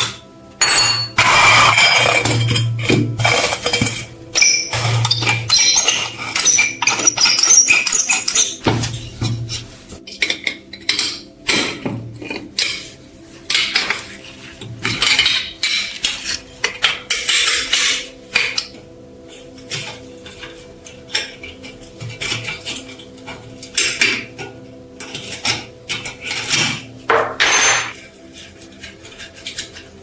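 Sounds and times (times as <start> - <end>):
metal tools clinking and knocking: 0.6 - 9.0, 25.1 - 28.0
scraping or brushing: 27.9 - 30.0.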